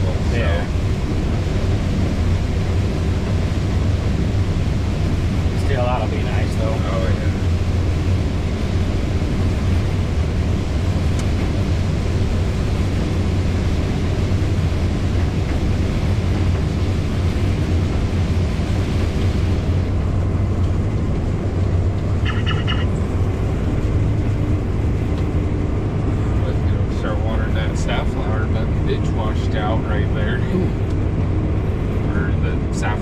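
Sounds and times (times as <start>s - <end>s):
combine harvester drone: 0.0s - 33.0s
electronic beeping: 22.2s - 22.9s.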